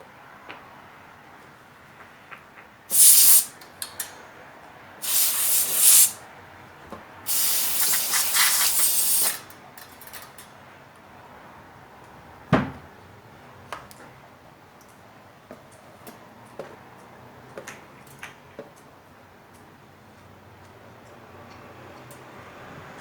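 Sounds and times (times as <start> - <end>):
aerosol can spraying: 2.9 - 3.5, 5.0 - 6.2, 7.3 - 9.4.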